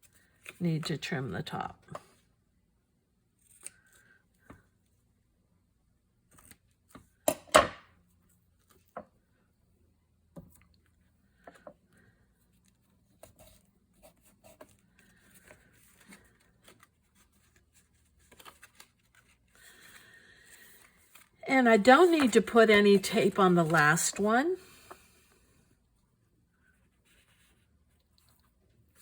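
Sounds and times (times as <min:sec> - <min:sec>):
paper rustling: 0:13.2 - 0:25.0.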